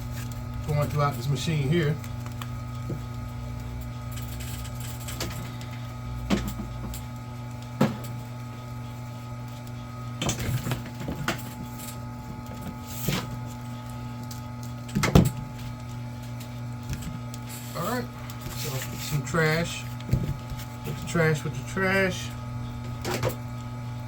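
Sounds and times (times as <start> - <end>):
machine motor humming: 0.0 - 24.0.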